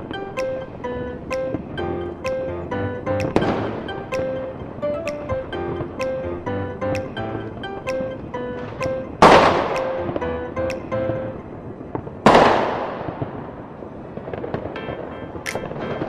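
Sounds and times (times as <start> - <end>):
music playing: 0.0 - 11.6
fireworks booming: 11.7 - 16.0
small sharp firework cracks: 12.2 - 14.8.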